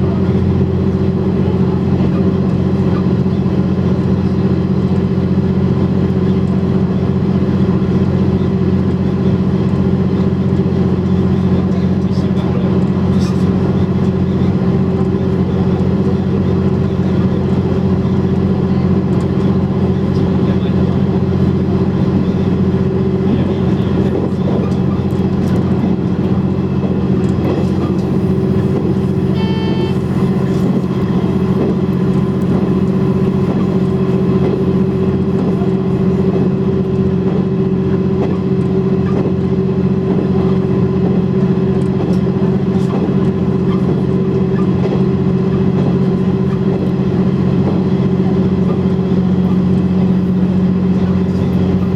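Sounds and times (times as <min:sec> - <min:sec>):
diesel railcar engine droning: 0:00.0 - 0:51.9
short high tone: 0:27.8 - 0:35.0.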